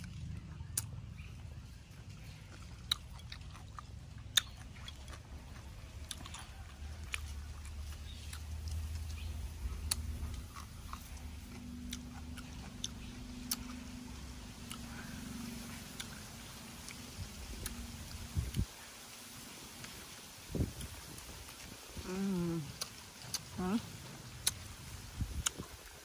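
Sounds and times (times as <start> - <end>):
person chewing salad: 0.0 - 18.8, 19.6 - 26.0.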